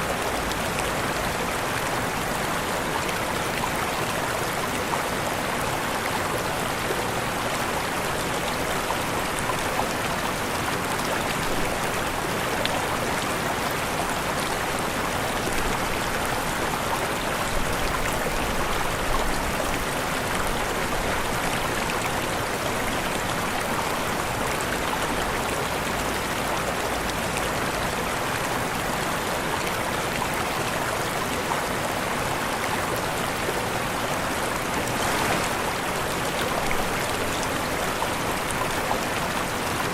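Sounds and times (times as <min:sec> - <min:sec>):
waterfall rushing: 0:33.8 - 0:39.9.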